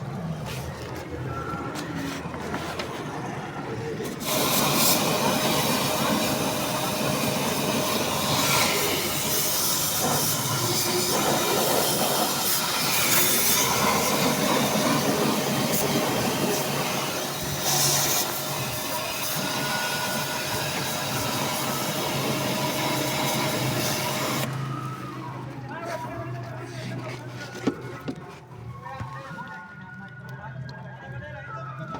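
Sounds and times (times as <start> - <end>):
pressurised gas hissing: 4.0 - 24.5.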